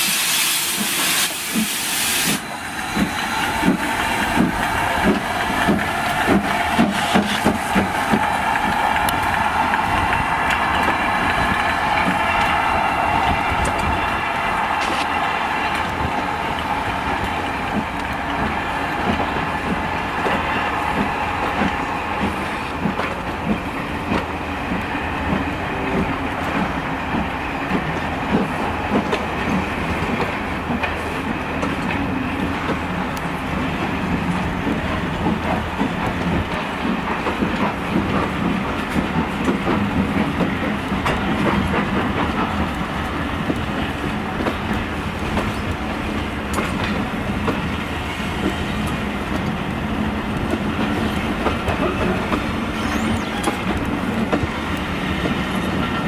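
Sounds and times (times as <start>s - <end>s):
train wheels clicking over rail joints: 0.0s - 12.8s, 13.5s - 56.0s.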